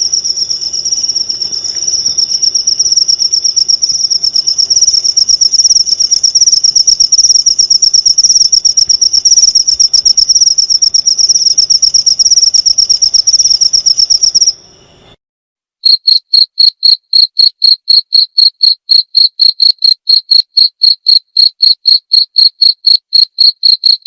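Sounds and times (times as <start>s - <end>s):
crickets fast high trill: 0.0s - 15.2s, 15.9s - 24.0s
crickets slow chirping: 0.0s - 15.2s.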